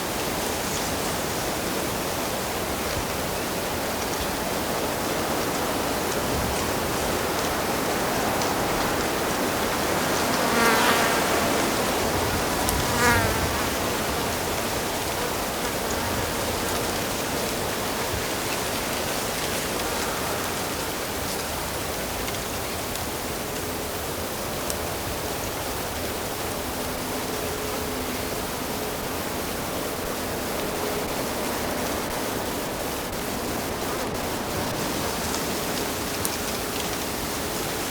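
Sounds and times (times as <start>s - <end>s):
insect buzzing past: 9.7s - 17.4s.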